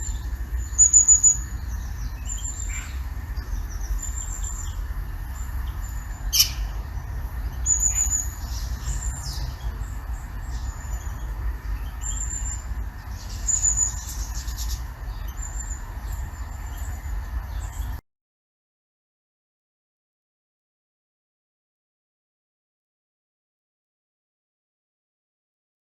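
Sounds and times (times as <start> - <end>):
small birds chirping: 0.0 - 18.0
steady low rumble: 0.0 - 18.0.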